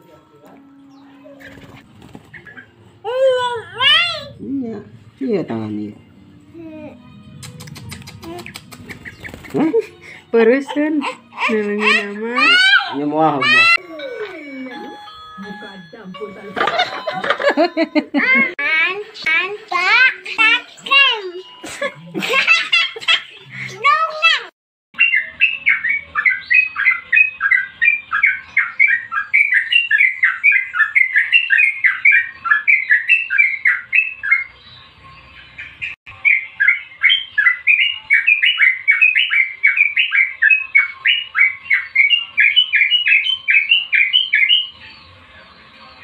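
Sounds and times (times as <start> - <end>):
songbird calling: 35.4 - 45.1.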